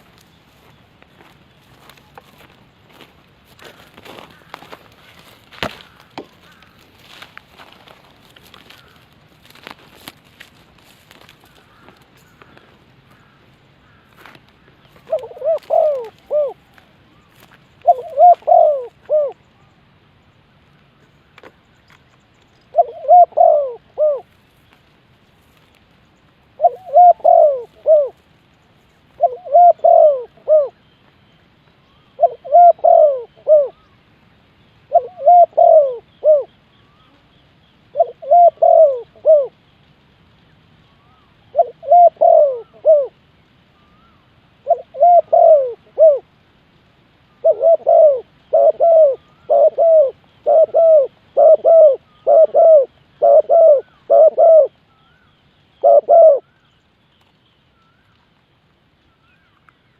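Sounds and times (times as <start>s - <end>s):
dove cooing: 0.0s - 19.4s, 22.7s - 24.4s, 26.6s - 28.2s, 29.1s - 30.8s, 32.1s - 33.9s, 34.9s - 39.6s, 41.0s - 43.2s, 43.8s - 46.3s, 47.3s - 56.7s.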